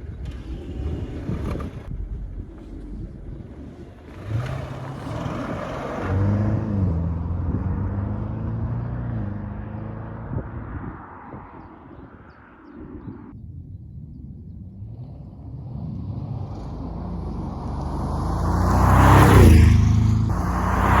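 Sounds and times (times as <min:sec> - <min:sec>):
car engine at low revs: 0:01.7 - 0:10.8, 0:14.8 - 0:21.0.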